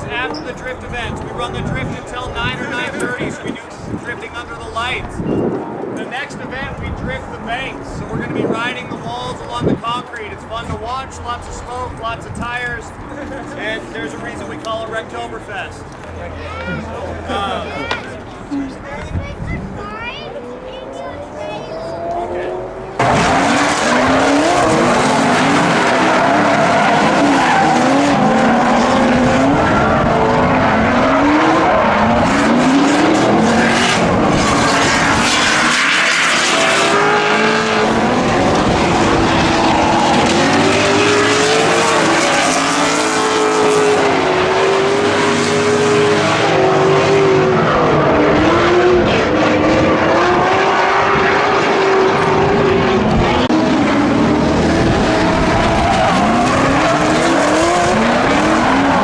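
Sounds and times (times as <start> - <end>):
car engine revving: 19.8 - 59.0
tyres squealing: 55.2 - 59.0.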